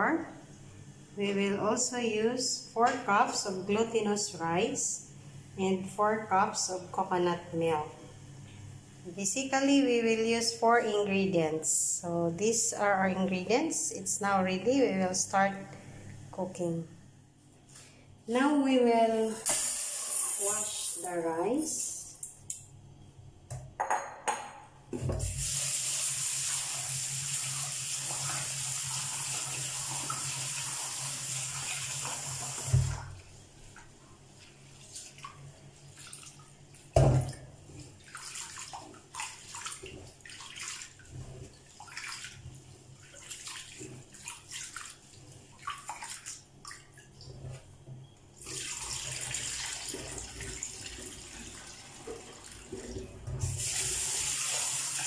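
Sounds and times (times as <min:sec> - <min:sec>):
tap water running into metal pot: 0:48.4 - 0:55.0.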